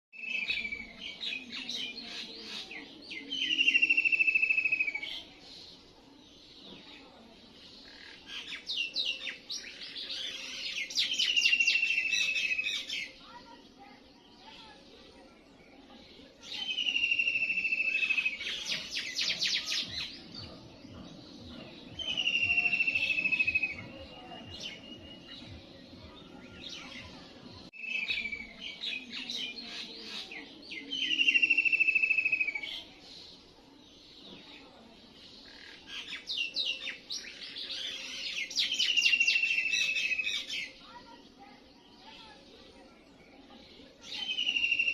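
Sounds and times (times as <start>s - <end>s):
songbird trilling: 21.9s - 25.4s.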